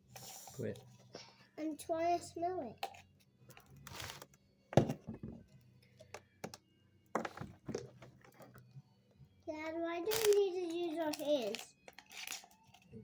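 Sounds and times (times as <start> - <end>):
objects knocking on hard surface: 4.7 - 5.5, 6.1 - 8.4.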